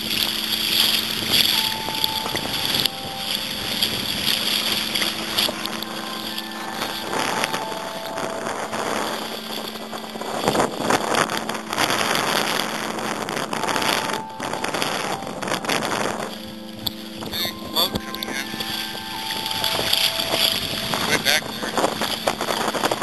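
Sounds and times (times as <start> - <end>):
water splashing against kayak: 0.0 - 23.0
wind buffeting microphone: 0.0 - 23.0.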